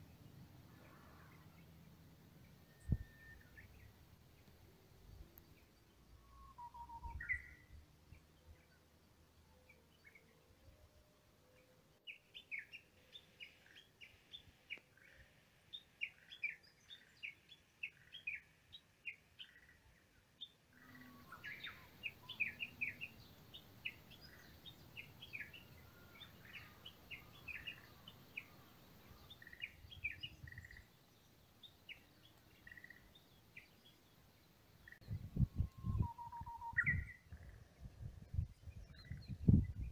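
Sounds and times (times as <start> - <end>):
small birds chirping: 0.0 - 10.7, 11.5 - 39.9
outdoor background hiss: 0.0 - 39.9.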